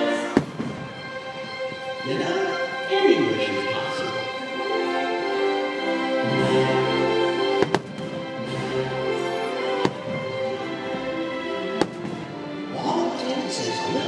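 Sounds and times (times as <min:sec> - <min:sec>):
soundtrack music: 0:00.0 - 0:14.0
firework bangs: 0:00.3 - 0:01.2, 0:07.5 - 0:08.4, 0:09.7 - 0:10.5, 0:11.8 - 0:12.4.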